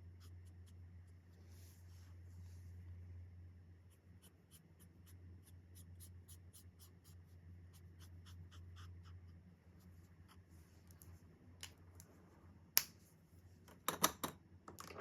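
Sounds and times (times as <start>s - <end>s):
steady low hum: 0.0s - 13.7s
marker scratching on paper: 3.9s - 10.5s.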